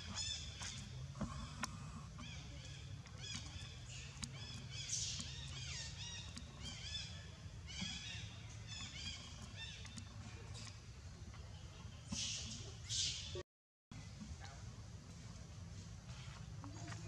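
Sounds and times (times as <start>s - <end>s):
birds chirping: 0.0s - 13.4s.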